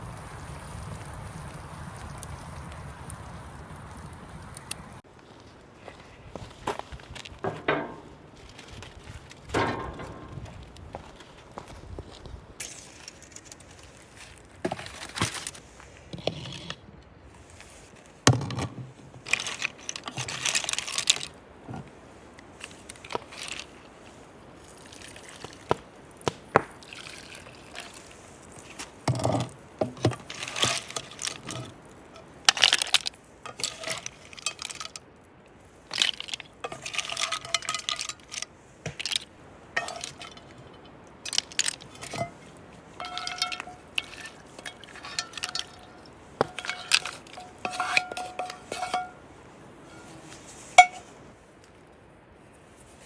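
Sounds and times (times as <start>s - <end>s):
shells and utensils clinking: 19.2s - 21.4s, 26.8s - 35.1s, 35.9s - 51.1s
liquid sloshing and dripping: 26.7s - 29.5s, 43.0s - 49.2s.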